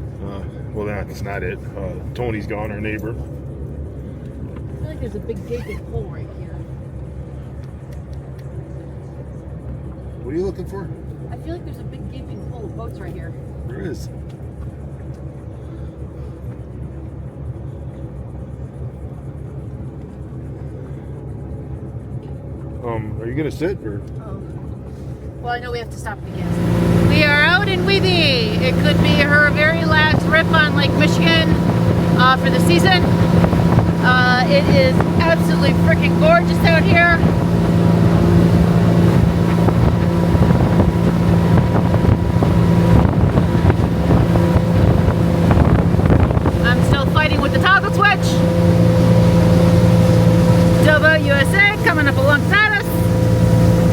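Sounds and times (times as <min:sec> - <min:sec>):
motorboat engine droning: 0:00.0 - 0:53.9
wind buffeting microphone: 0:26.3 - 0:53.9.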